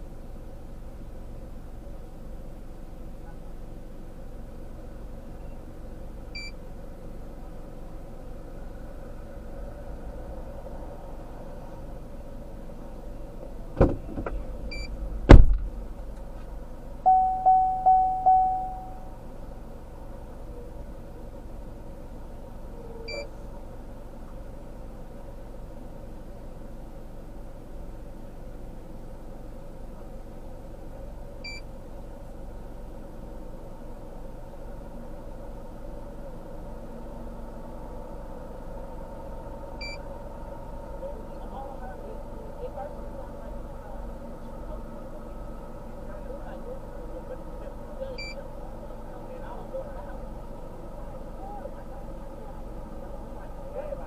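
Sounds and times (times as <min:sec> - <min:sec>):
vehicle engine idling: 0:00.0 - 0:54.0
vehicle thumps: 0:13.7 - 0:14.5, 0:15.2 - 0:15.7
steady hum: 0:16.7 - 0:22.9
car warning chimes: 0:17.0 - 0:19.2, 0:23.1 - 0:23.3, 0:48.2 - 0:48.5
short high electronic beeps: 0:17.1 - 0:19.1.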